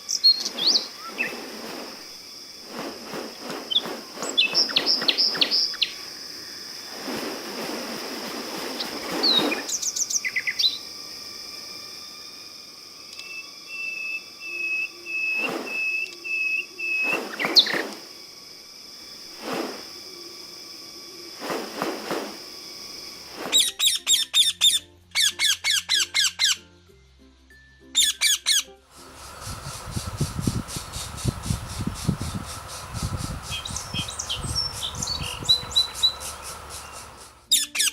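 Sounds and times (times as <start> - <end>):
quick repeated chirps: 0.0 - 6.1, 16.9 - 18.1
birds calling: 0.0 - 11.0, 13.2 - 18.2, 28.0 - 37.9
steady high-pitched hum: 0.0 - 24.0, 28.9 - 37.5.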